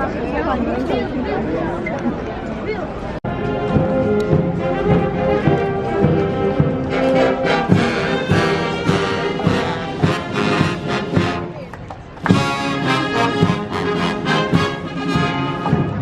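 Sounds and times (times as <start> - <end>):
brass band playing: 3.3 - 16.0.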